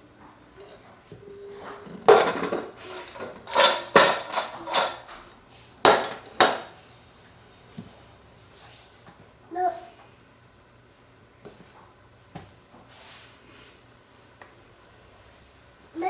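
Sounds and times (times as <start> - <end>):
hard objects clattering together: 1.6 - 5.2, 5.8 - 6.7.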